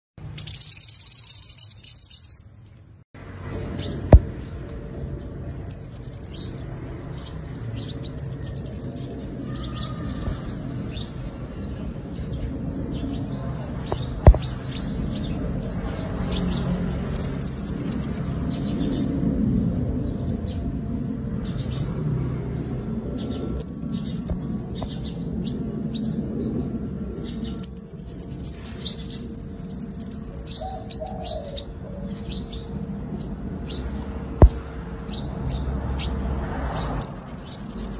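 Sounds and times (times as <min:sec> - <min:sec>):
quiet bird twitters: 0:00.2 - 0:02.6, 0:03.6 - 0:36.2, 0:36.9 - 0:37.9
sunbird high fast trills: 0:00.2 - 0:02.6, 0:08.0 - 0:10.9.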